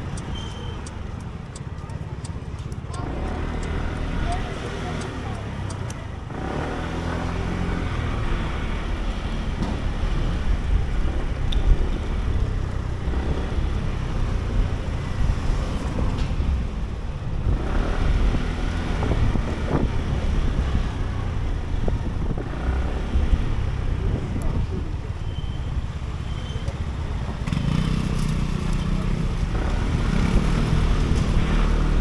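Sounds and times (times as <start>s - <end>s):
road rumble: 0.0s - 32.0s
scooter engine: 0.0s - 32.0s
surrounding traffic: 0.0s - 32.0s
wind noise: 7.7s - 26.1s.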